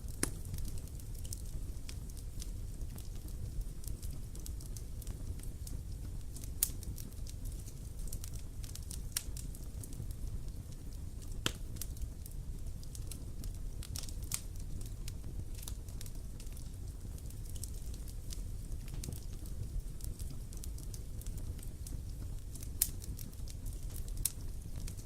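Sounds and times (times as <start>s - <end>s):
campfire crackling and popping: 0.0s - 25.0s
low rumble of burning fire: 0.0s - 25.0s.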